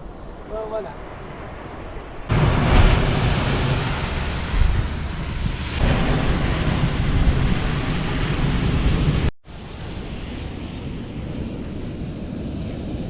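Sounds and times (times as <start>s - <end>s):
wind buffeting microphone: 0.2s - 13.0s
surf breaking on shore: 2.3s - 13.0s.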